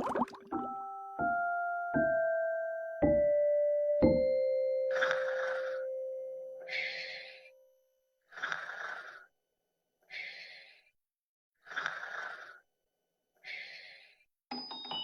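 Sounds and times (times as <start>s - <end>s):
chiming music notes: 0.5s - 6.6s, 14.5s - 15.0s.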